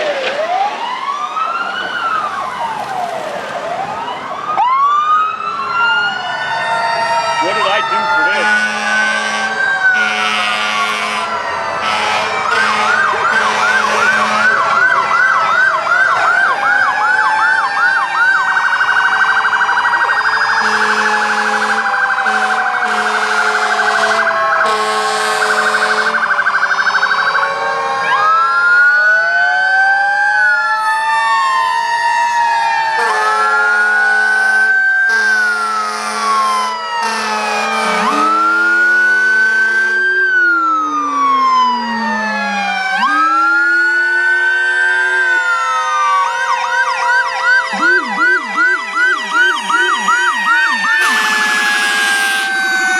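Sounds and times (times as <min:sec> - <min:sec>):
fire truck sirens wailing: 0:00.0 - 0:52.9
horn blasts: 0:07.5 - 0:14.8, 0:20.6 - 0:26.3, 0:33.0 - 0:36.4, 0:37.0 - 0:40.1, 0:50.8 - 0:52.6.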